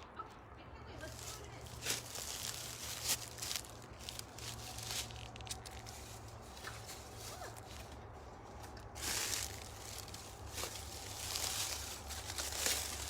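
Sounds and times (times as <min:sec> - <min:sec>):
footsteps rustling through dry leaves: 0:01.0 - 0:13.0.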